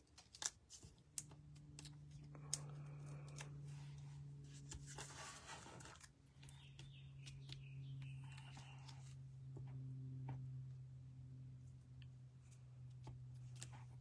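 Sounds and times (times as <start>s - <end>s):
low electrical hum: 0.0s - 14.0s
paper rustling: 3.1s - 6.1s.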